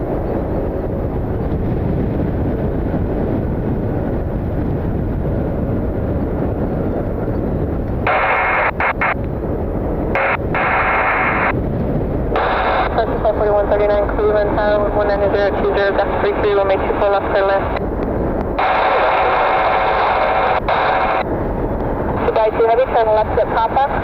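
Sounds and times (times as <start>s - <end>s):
wind buffeting microphone: 0.0s - 24.0s
radio transmissions: 8.0s - 9.3s, 10.1s - 11.6s, 12.3s - 21.3s, 22.2s - 24.0s.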